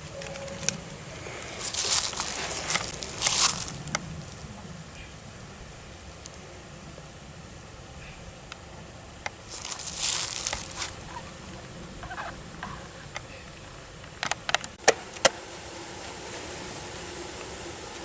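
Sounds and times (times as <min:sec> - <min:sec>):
crate rustling: 0:00.0 - 0:04.4, 0:09.5 - 0:12.8
faint buzz of bees: 0:00.0 - 0:14.2.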